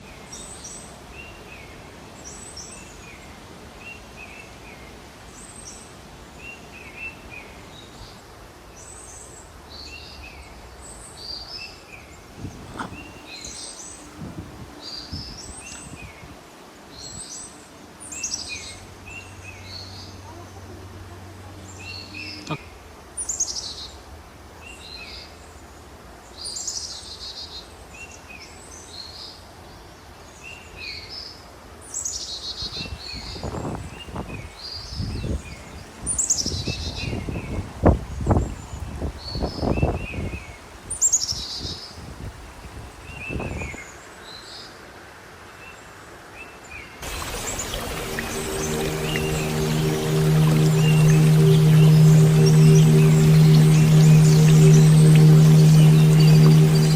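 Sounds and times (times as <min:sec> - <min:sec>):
steady background hiss: 0:46.9 - 0:56.9.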